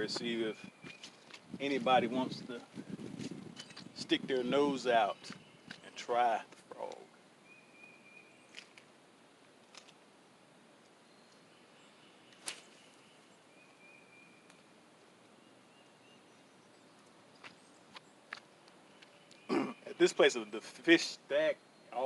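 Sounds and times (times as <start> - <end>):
small sharp clicks: 8.5 - 8.9, 9.6 - 10.0.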